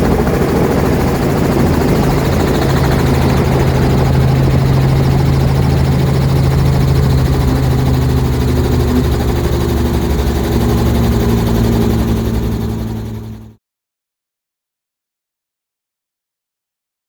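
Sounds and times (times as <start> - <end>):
high steady tone: 0.0 - 13.5
helicopter engine and rotor: 0.0 - 13.6.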